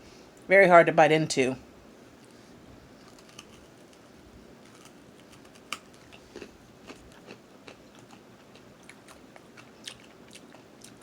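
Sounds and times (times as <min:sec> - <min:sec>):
chewing hard candy crunching: 0:03.0 - 0:04.0, 0:04.6 - 0:11.0.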